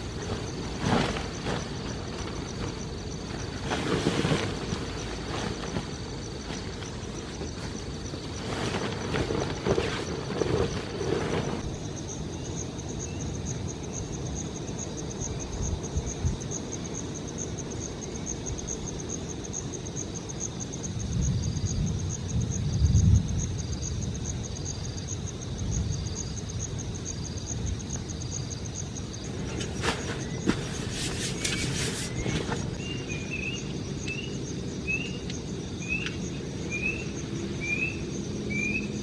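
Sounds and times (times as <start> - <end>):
insect rapid pulsing trill: 0.0 - 39.0
insect short chirps: 29.1 - 39.0.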